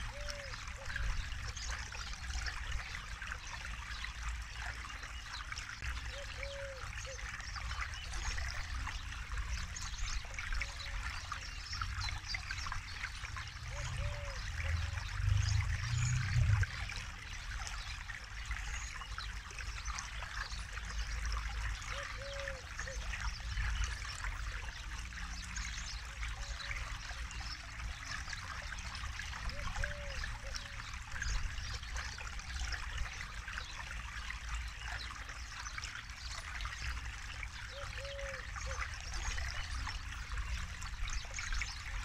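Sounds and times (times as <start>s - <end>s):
river babbling over stones: 0.0s - 42.0s
deep rumble: 15.1s - 16.8s.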